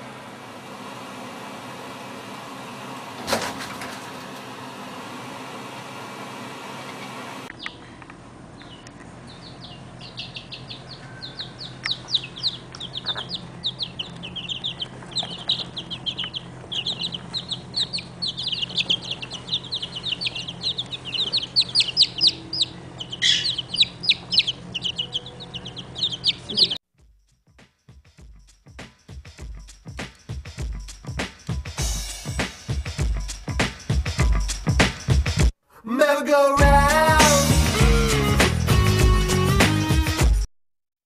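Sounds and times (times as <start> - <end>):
baby chicks peeping: 6.7 - 26.8
low hum: 7.4 - 26.8.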